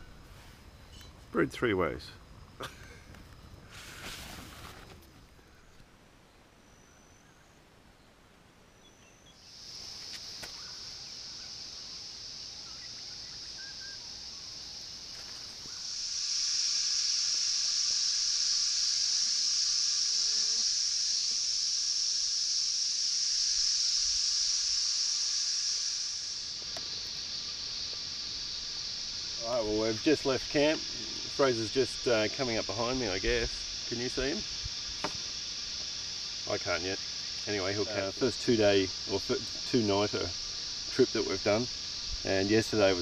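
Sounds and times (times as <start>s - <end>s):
insect chorus drone: 0.0s - 43.0s
low insect buzzing: 8.8s - 43.0s.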